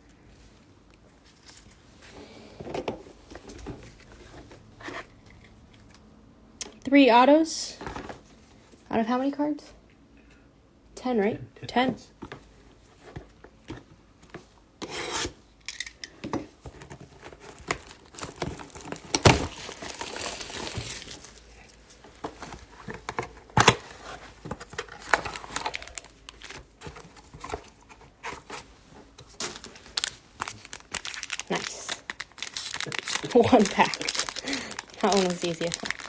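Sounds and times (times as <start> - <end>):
cards and boxes rustling: 16.6 - 36.0
packaging tearing and crinkling: 17.4 - 21.5, 24.8 - 26.7, 29.4 - 36.0.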